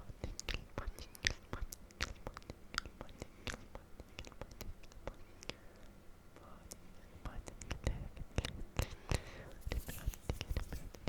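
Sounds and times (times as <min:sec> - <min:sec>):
wet mouth clicks and smacks: 0:00.4 - 0:05.5.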